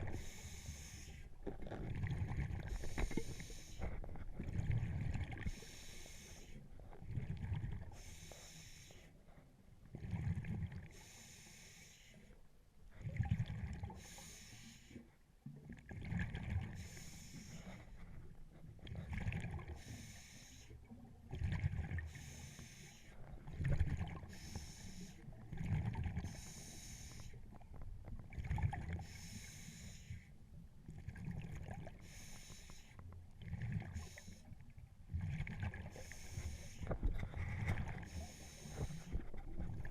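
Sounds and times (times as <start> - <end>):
exhaled air bubbling: 0.0 - 8.1, 9.9 - 11.1, 12.9 - 14.1, 15.6 - 20.2, 21.0 - 22.6, 23.2 - 29.7, 30.8 - 32.3, 33.3 - 39.9
regulator hiss on inhale: 0.1 - 1.3, 2.7 - 4.0, 5.5 - 6.6, 8.0 - 9.2, 10.9 - 12.4, 14.0 - 15.0, 16.8 - 18.0, 19.8 - 20.8, 22.1 - 23.2, 24.3 - 25.3, 26.3 - 27.4, 29.0 - 30.3, 32.0 - 33.0, 34.0 - 34.5, 35.9 - 37.0, 38.0 - 39.2.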